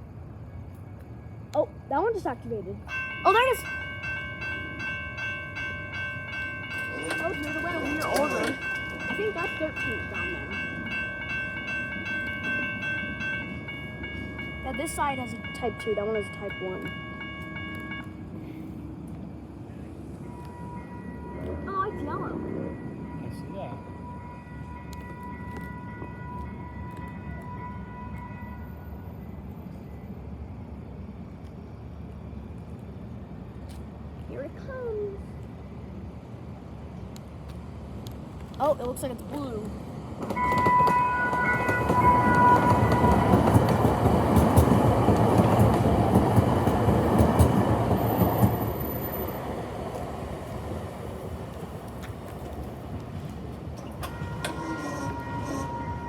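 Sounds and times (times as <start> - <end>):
street traffic rumble: 0.0 - 56.0
crossing warning signal tones: 0.8 - 18.6, 20.0 - 30.3, 40.2 - 52.0, 53.1 - 56.0.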